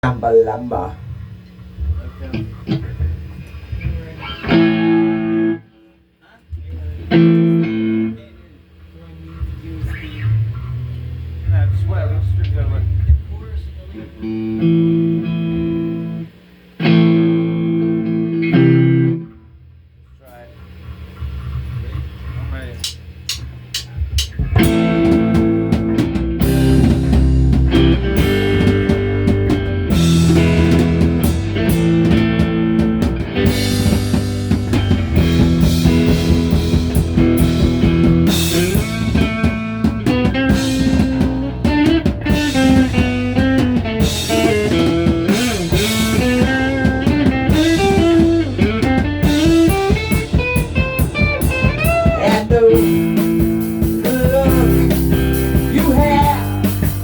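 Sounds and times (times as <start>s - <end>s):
instrumental rock music: 0.0s - 5.7s, 7.0s - 8.2s, 14.1s - 19.7s, 22.8s - 57.0s
lead guitar bending notes: 4.2s - 5.7s, 24.4s - 57.0s.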